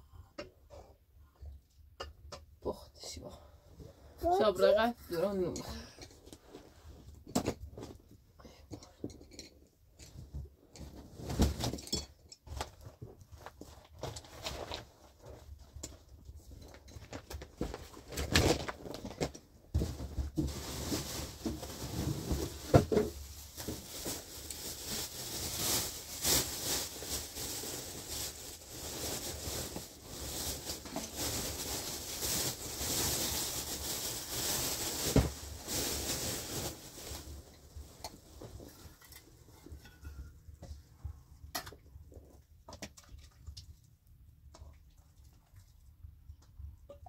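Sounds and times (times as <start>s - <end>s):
cloth and plastic bag rustling: 10.8s - 40.2s.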